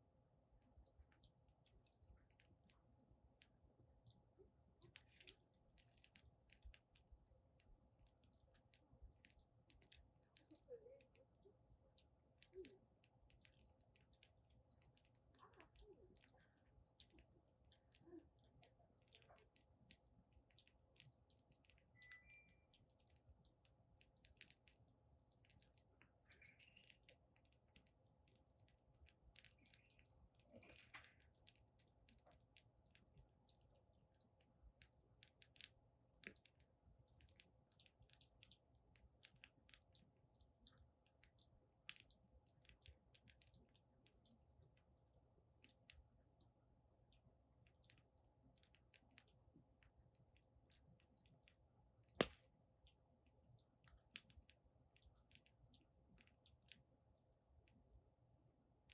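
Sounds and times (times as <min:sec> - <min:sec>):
firewood crackling: 0:00.6 - 0:46.2, 0:52.0 - 0:53.0.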